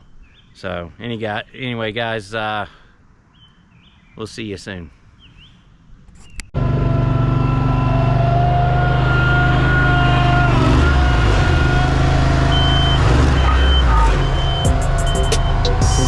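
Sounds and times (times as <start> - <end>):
heavy diesel machine running: 6.6 - 16.0
backup alarm beeping: 10.7 - 16.0.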